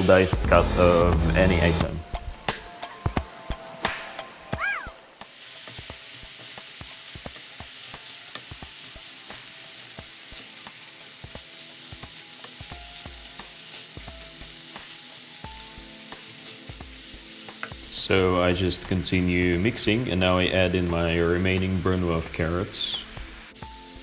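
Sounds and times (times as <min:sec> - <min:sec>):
meat sizzling in a frying pan: 0:05.1 - 0:24.0.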